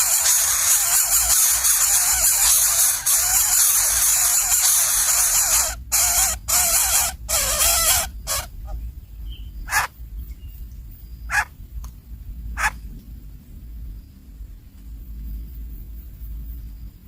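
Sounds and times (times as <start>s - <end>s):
nestlings begging with raspy calls: 0.0s - 10.0s, 11.3s - 11.6s
short sharp bird calls: 0.0s - 10.0s.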